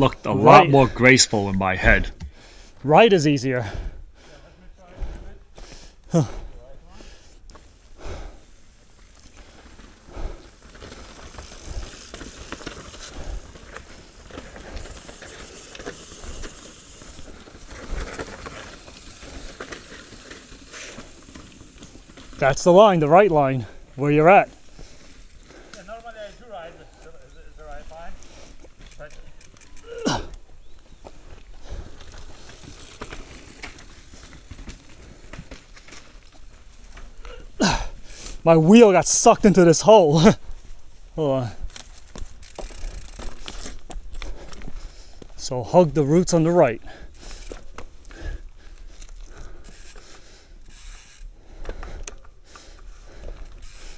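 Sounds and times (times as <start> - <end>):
bike tyres on dirt and rock: 0.0 - 53.9
bike rattling and knocking: 7.5 - 38.4, 41.4 - 45.3.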